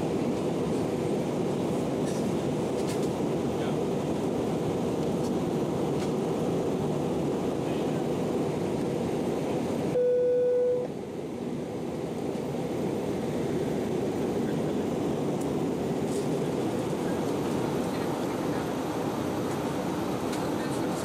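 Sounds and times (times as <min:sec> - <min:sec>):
airliner cabin noise: 0:00.0 - 0:21.0
electronic cabin chime beep: 0:10.0 - 0:10.9.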